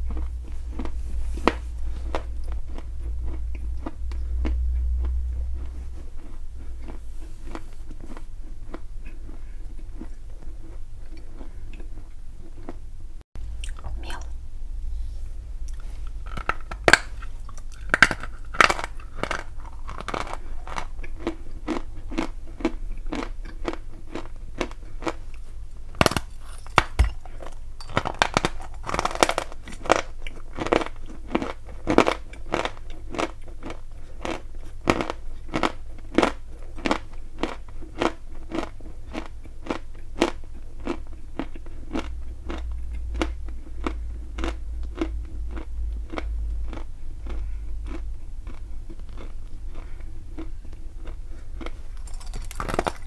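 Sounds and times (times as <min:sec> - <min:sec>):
gritty chewing crunches: 0:00.0 - 0:12.8, 0:15.7 - 0:53.0
soft mouth sounds: 0:13.5 - 0:20.8.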